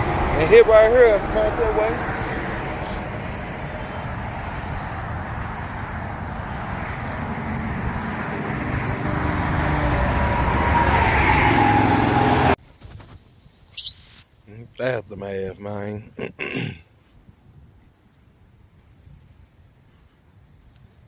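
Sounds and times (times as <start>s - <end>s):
car engine revving: 0.0s - 12.6s
tyre and road noise: 0.0s - 14.2s.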